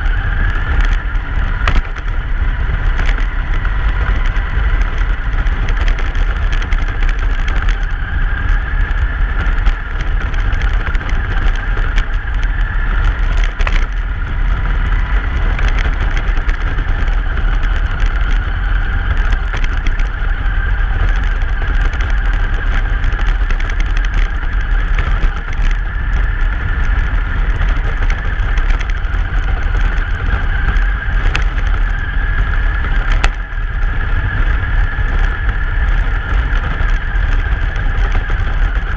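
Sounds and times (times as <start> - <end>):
truck engine and tyre rumble: 0.0 - 38.9.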